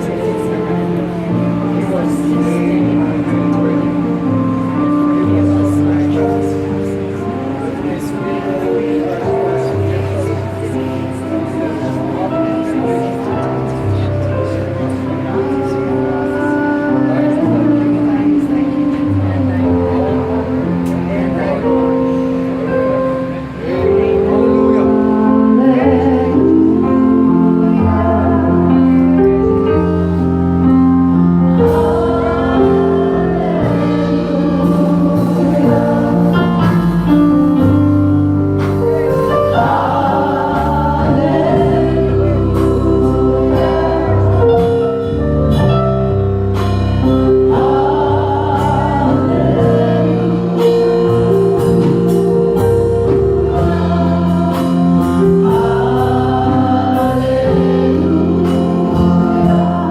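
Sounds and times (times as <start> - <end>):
choir singing gospel: 0.0 - 59.9
sustained bass notes: 0.0 - 59.9
percussion strikes: 33.6 - 43.9.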